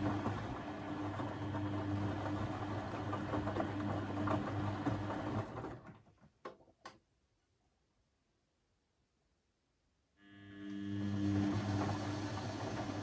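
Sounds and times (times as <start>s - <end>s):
washing machine motor humming: 0.0s - 6.2s, 10.2s - 13.0s.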